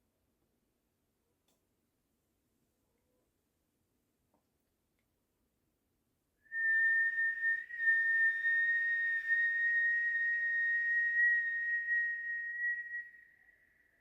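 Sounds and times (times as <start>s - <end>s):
person whistling a high note: 6.5s - 14.0s.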